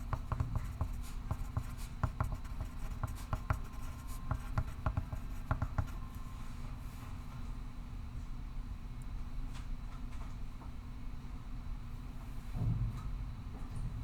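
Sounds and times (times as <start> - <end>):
pencil scratching on paper: 0.0 - 6.0.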